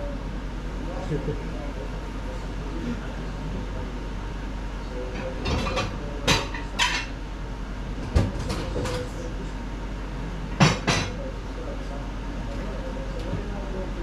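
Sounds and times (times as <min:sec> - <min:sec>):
steady background hum: 0:00.0 - 0:14.0
dishes and utensils clattering: 0:05.2 - 0:07.2, 0:08.1 - 0:09.1, 0:10.6 - 0:11.2.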